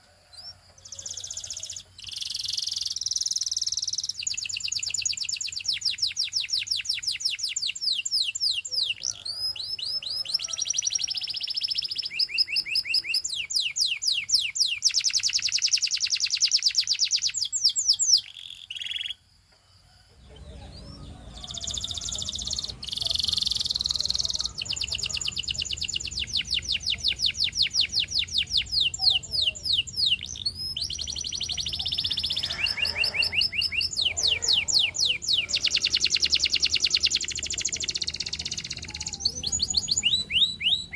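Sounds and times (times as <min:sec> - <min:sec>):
canary singing trills: 0:00.0 - 0:19.3, 0:20.0 - 0:40.9
faint low hum: 0:19.4 - 0:40.9.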